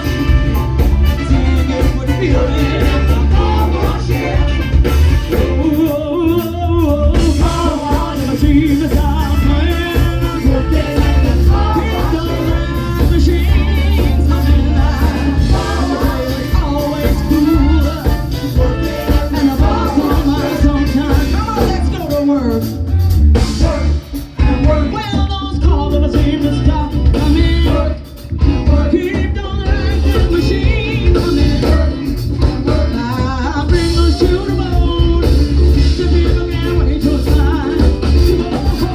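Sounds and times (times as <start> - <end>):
live funk band playing: 0.0 - 38.9
person singing: 1.3 - 22.8, 23.4 - 38.9.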